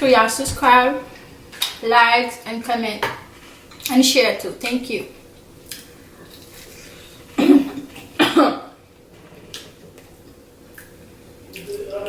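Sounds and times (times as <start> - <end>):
person coughing: 7.4 - 8.8.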